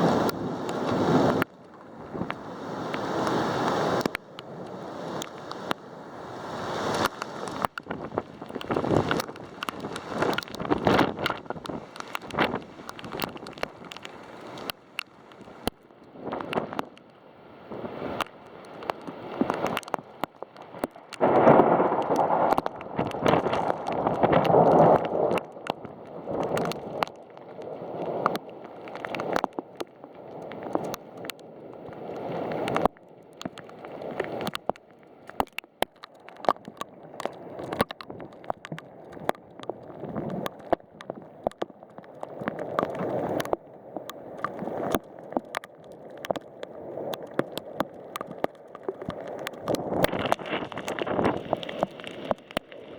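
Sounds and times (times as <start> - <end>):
wind gusts: 0.0 - 14.6
drops ticking on hard surface: 6.9 - 17.1, 18.1 - 27.5, 28.1 - 52.9
heavy rain: 20.7 - 26.9.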